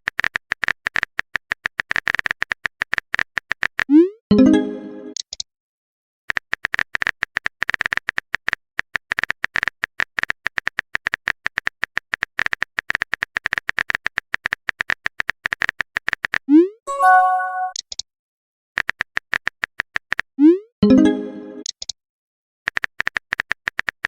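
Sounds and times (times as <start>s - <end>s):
keyboard typing clicks: 16.9s - 18.0s.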